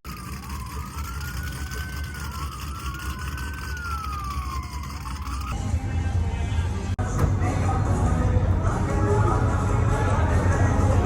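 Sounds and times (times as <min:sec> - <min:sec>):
low engine rumble: 0:00.0 - 0:11.0
siren wailing: 0:00.1 - 0:05.6.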